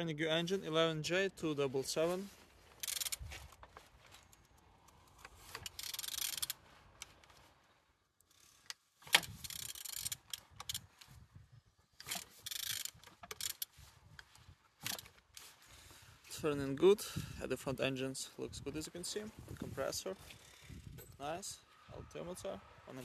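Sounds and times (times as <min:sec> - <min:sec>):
metallic clicks and scraping: 0:02.7 - 0:07.5, 0:08.2 - 0:11.2, 0:12.0 - 0:15.6, 0:20.2 - 0:21.2.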